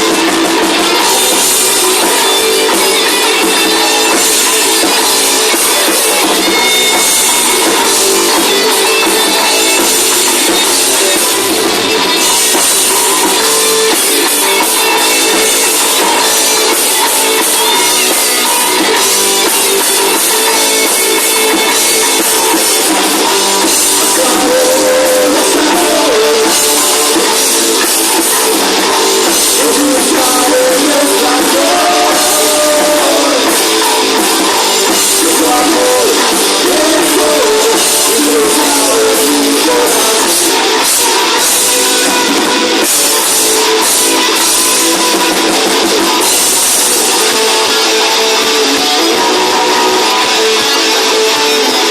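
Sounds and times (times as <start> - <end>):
drum kit: 0.0 - 51.9
rock band playing live: 0.0 - 51.9.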